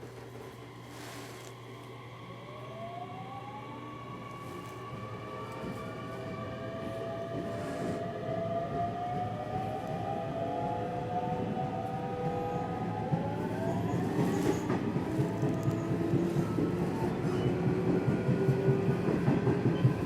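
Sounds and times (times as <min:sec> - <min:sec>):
train motor inverter whine: 0:00.0 - 0:20.0
wheel and track rumble: 0:11.3 - 0:20.0.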